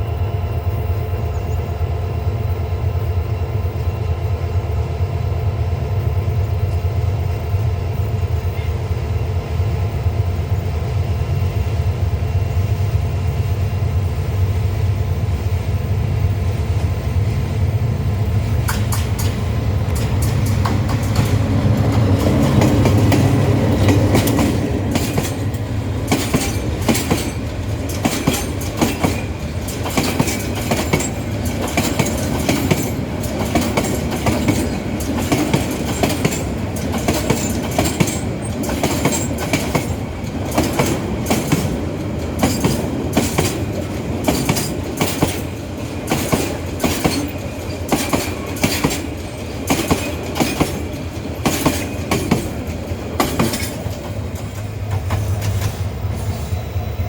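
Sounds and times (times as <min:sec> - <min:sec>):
locomotive engine drone: 0:00.0 - 0:57.0
train wheels clacking on rails: 0:06.2 - 0:57.0.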